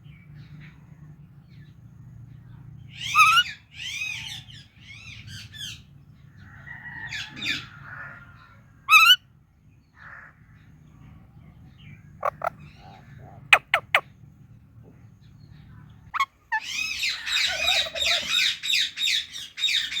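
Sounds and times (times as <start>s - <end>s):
parakeet squawking and chattering: 3.0s - 4.2s, 8.9s - 9.2s, 12.2s - 14.1s, 16.1s - 20.0s
faint low hum: 7.6s - 18.5s
sharp bird chirps: 12.2s - 14.1s.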